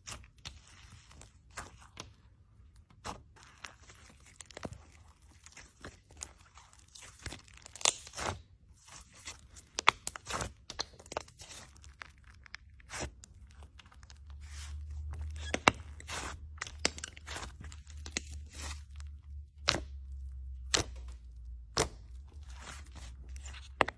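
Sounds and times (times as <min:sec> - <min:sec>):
slime crackling and popping: 0:03.0 - 0:23.9.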